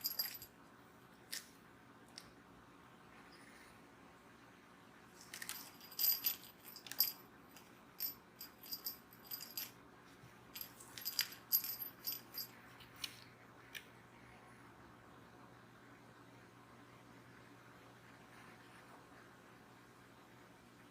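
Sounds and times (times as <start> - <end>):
small metal bell jingling: 0.0 - 0.5, 5.4 - 7.2, 8.0 - 9.8, 10.6 - 12.6.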